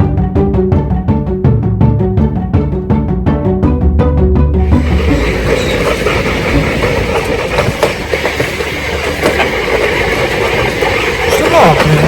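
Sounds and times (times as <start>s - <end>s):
toboggan runners scraping street: 4.6s - 12.0s.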